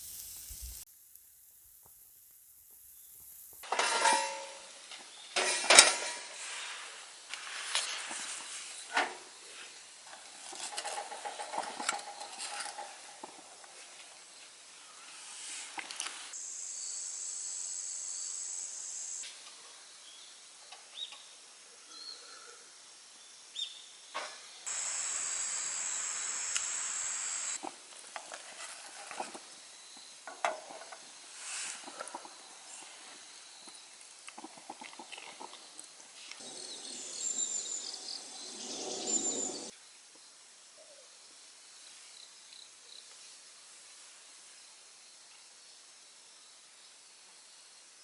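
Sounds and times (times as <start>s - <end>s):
food sizzling on a grill: 0.0s - 3.6s, 24.7s - 27.6s.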